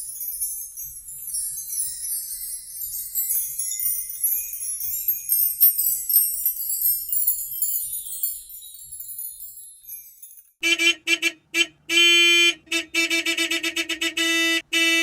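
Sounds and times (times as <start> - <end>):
small bells jingling: 0.0 - 10.6.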